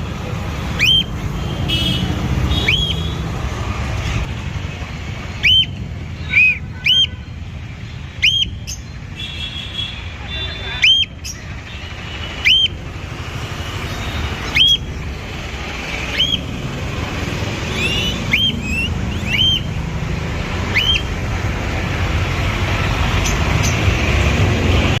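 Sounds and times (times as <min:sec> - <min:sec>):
low traffic rumble: 0:00.0 - 0:25.0
bird whistling sharp rising calls: 0:00.8 - 0:01.2, 0:02.6 - 0:03.1, 0:05.4 - 0:07.2, 0:08.2 - 0:08.8, 0:12.4 - 0:12.8, 0:14.4 - 0:15.0, 0:16.0 - 0:16.6, 0:17.6 - 0:19.9, 0:20.6 - 0:21.2.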